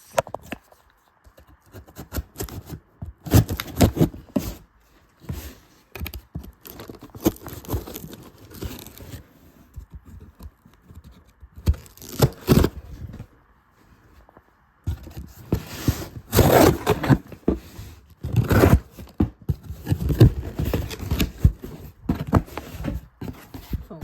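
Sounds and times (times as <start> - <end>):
cardboard scraping and rustling: 0.0 - 24.0
packing tape tearing: 11.7 - 12.7.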